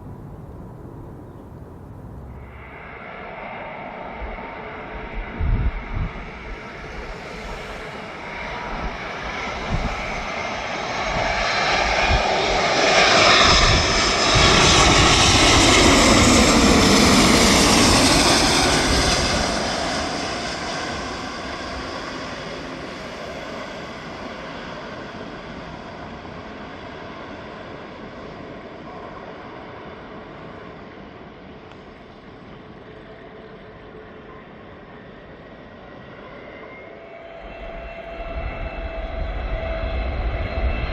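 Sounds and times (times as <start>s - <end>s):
jet plane passing by: 0.0s - 40.9s.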